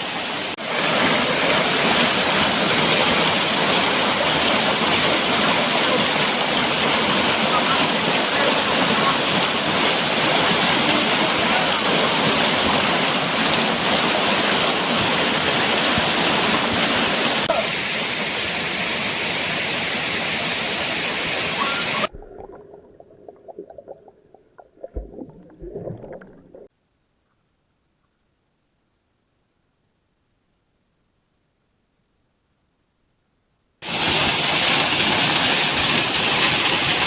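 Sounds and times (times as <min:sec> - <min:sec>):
waterfall rushing: 0:00.0 - 0:26.7.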